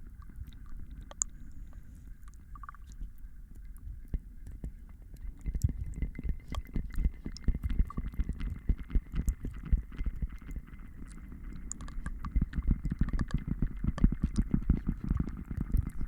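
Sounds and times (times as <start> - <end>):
soft crackles and taps: 0.0 - 16.0.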